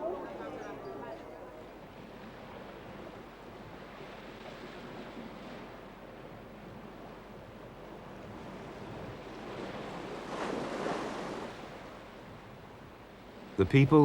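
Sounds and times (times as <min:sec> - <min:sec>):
sea waves washing on shore: 0:00.0 - 0:14.0
wave breaking: 0:08.4 - 0:12.0.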